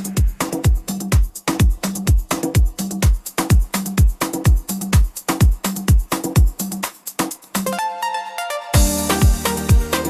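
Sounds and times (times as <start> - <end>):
deep kick drums: 0.0 - 6.6, 8.8 - 10.0
electronic dance music: 0.0 - 10.0
cymbal crash: 8.8 - 10.0.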